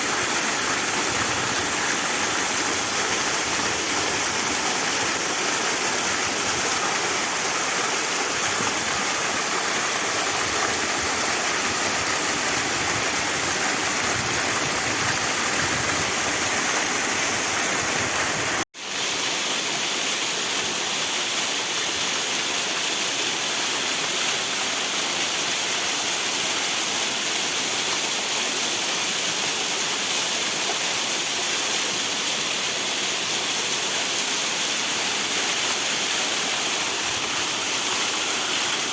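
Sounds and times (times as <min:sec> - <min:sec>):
waterfall rushing: 0:00.0 - 0:19.8, 0:29.8 - 0:38.9.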